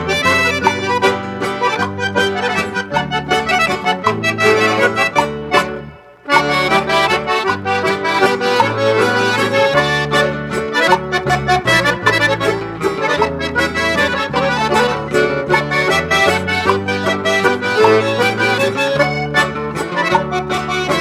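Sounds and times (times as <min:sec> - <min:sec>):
accordion dance music: 0:00.0 - 0:21.0.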